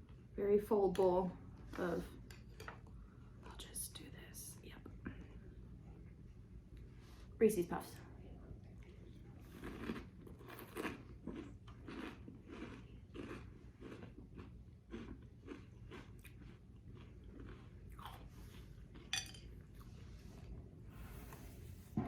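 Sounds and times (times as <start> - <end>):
chewing crunchy cereal: 8.8 - 20.2.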